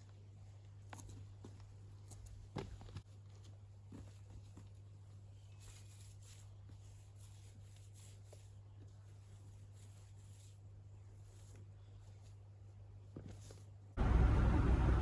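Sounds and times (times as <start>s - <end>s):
steady low hum: 13.8s - 15.0s.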